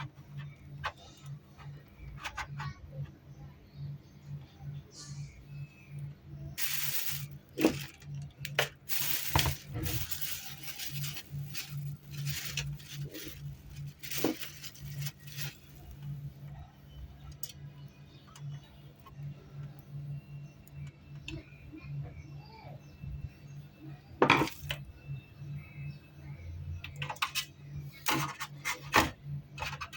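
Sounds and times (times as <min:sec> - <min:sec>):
pulsing low hum: 0:02.7 - 0:20.6
hard objects being handled: 0:06.6 - 0:16.2.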